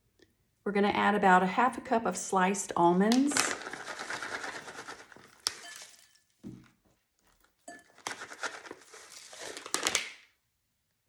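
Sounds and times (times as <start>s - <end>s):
sliced almonds poured into bowl: 3.2s - 6.1s, 8.0s - 10.2s.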